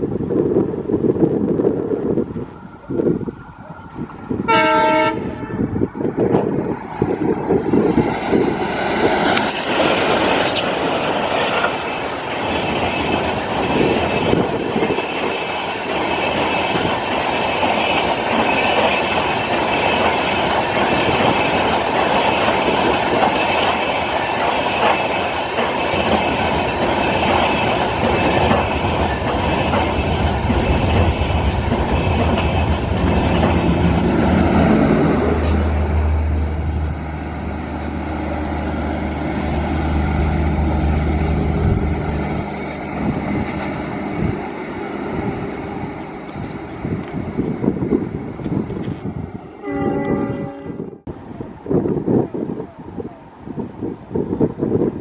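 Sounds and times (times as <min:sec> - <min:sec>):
train wheels clattering on rails: 0:03.6 - 0:36.4, 0:41.0 - 0:50.3
locomotive horn blast: 0:04.4 - 0:05.9, 0:49.6 - 0:51.1.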